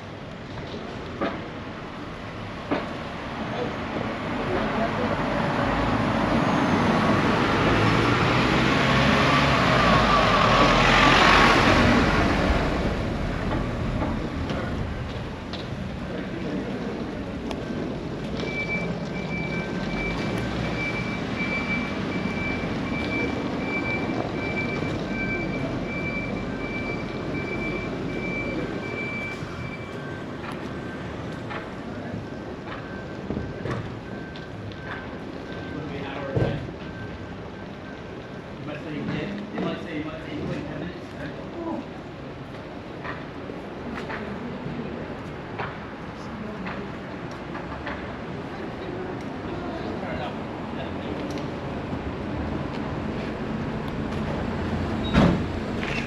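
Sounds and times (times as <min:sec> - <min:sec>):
vehicle rumbling past: 0:03.1 - 0:34.9
electronic warning beeps: 0:18.4 - 0:38.6.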